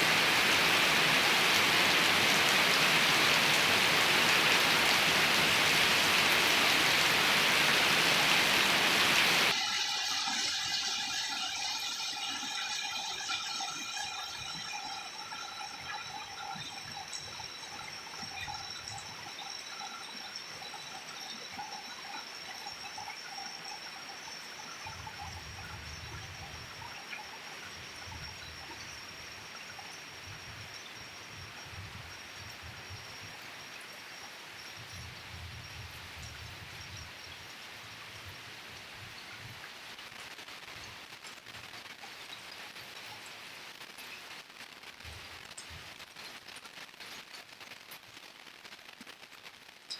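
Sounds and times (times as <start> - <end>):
heavy rain pouring: 0.0 - 19.4
light rain and dripping water: 0.0 - 49.9.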